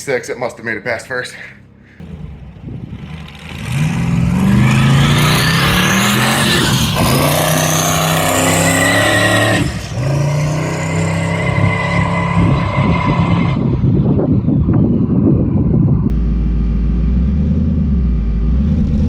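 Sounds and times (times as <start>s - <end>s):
car engine revving hard: 2.0s - 14.2s
high turbo whine: 2.0s - 19.0s.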